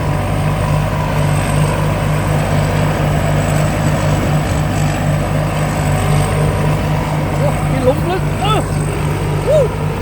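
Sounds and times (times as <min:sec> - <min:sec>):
combine harvester engine droning: 0:00.0 - 0:10.0.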